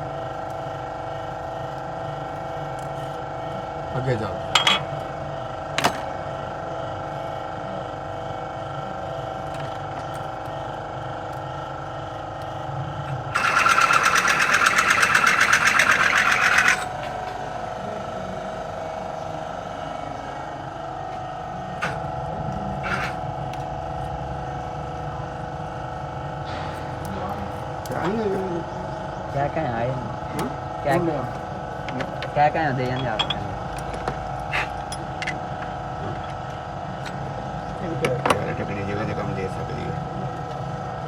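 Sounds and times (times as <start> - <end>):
car engine idling: 13.2 - 38.7
loud fast mechanical rattle: 13.3 - 17.0.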